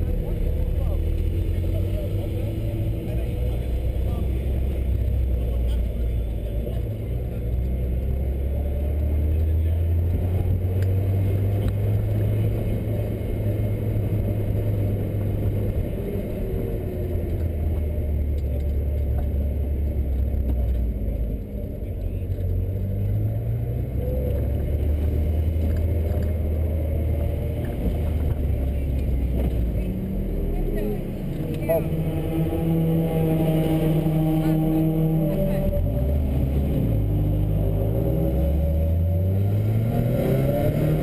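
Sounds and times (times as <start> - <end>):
car engine droning: 0.0 - 41.0.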